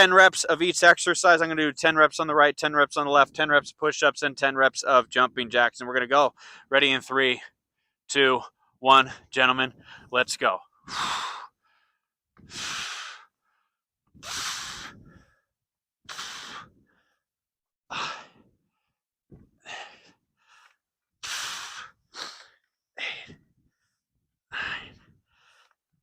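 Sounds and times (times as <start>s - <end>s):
man breathing out forcefully: 6.4s - 6.7s, 10.8s - 15.5s, 16.1s - 17.2s, 17.9s - 18.6s, 19.5s - 23.8s, 24.5s - 25.8s.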